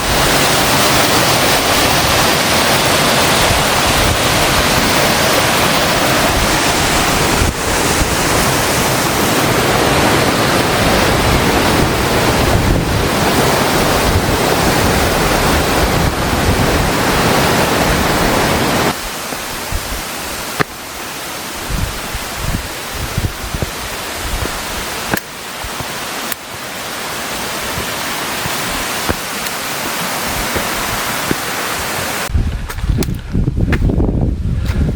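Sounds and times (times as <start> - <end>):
mountain stream rushing: 0.0 - 32.3.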